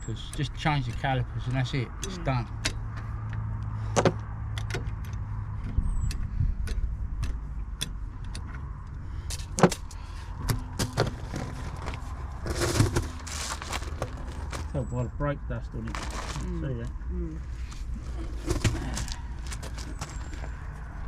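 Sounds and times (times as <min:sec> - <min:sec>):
metal tools clinking: 0:18.5 - 0:20.5.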